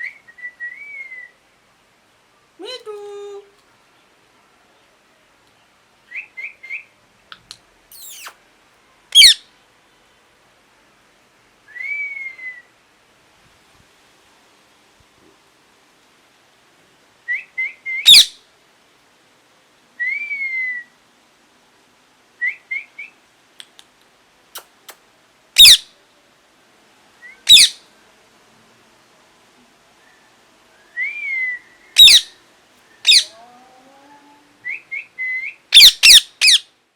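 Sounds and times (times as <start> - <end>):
parakeet squawks: 7.9 - 8.4, 9.1 - 9.4, 18.0 - 18.4, 25.6 - 25.9, 27.5 - 27.8, 32.0 - 32.4, 33.0 - 33.3, 35.7 - 36.7
parakeet whistling: 7.9 - 8.4, 9.2 - 9.4, 18.0 - 18.3, 25.6 - 25.8, 27.3 - 27.8, 31.2 - 32.4, 33.0 - 33.3, 34.7 - 36.7
parrot chirping and calling: 7.9 - 8.4, 9.1 - 9.5, 18.0 - 18.4, 25.6 - 25.9, 27.4 - 27.8, 32.0 - 32.4, 33.0 - 33.4, 35.7 - 36.7.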